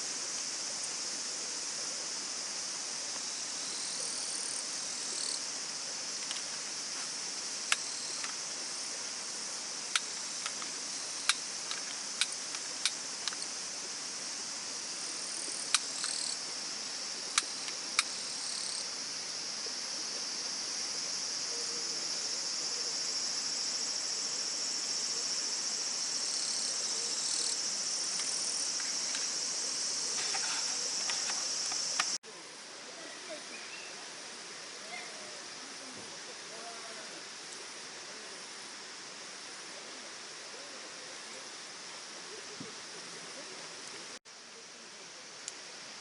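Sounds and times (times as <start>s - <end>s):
crickets chirping: 0.0s - 46.0s
even hiss: 0.0s - 46.0s.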